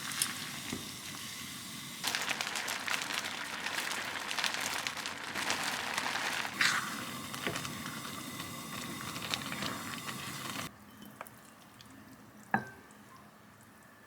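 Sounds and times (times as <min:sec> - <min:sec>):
food sizzling and bubbling: 0:00.0 - 0:10.7.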